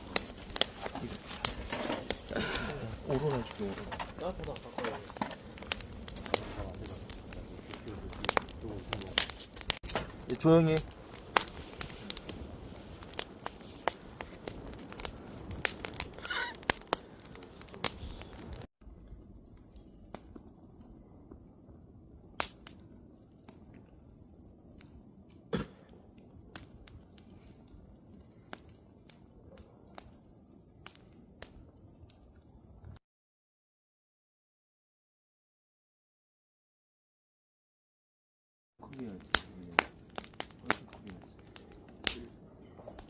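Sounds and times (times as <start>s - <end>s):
wood fire crackling and popping: 0.0s - 33.0s, 38.8s - 43.0s.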